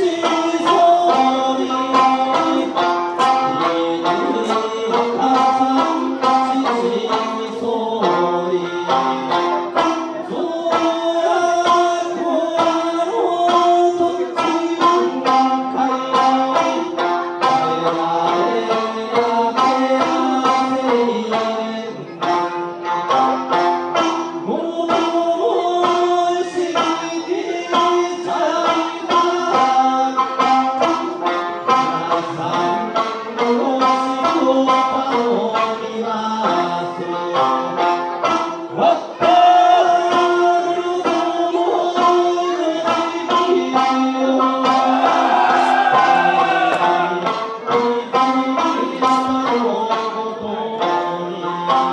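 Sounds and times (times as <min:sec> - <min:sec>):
person singing: 0:00.0 - 0:51.9
plucked lute: 0:00.0 - 0:51.9
steady drum beats: 0:44.6 - 0:47.4.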